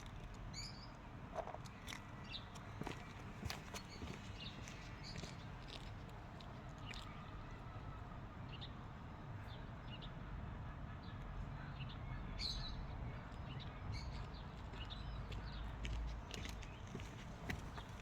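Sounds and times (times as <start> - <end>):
small birds chirping: 1.6 - 5.9.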